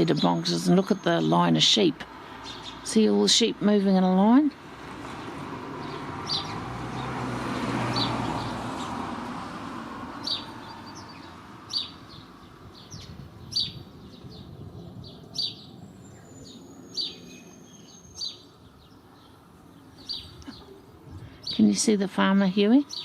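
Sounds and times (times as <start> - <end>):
bird chirping: 5.8 - 7.1, 10.2 - 23.0.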